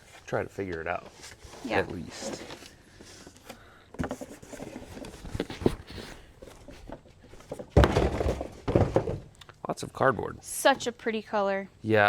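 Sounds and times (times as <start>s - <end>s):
cardboard scraping rustle: 0.0s - 9.2s
cardboard knocks: 6.8s - 9.3s.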